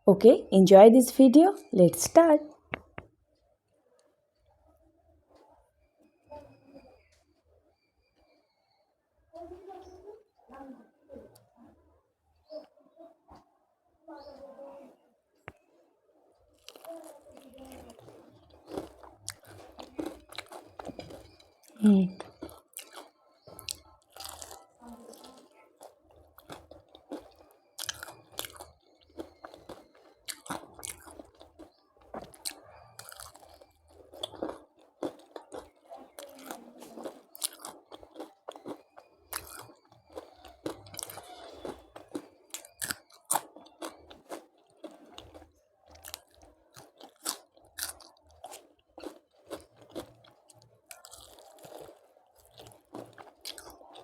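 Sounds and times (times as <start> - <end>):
person chewing crunchy food: 16.5 - 54.0.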